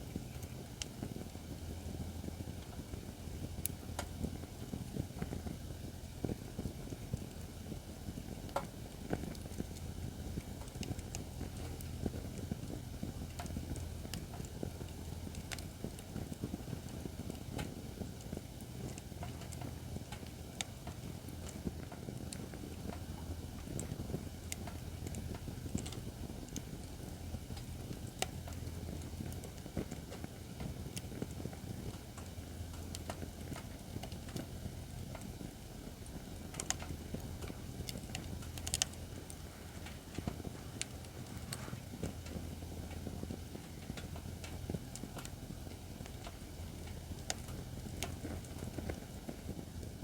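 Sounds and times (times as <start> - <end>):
fire crackling and popping: 0.0 - 50.0.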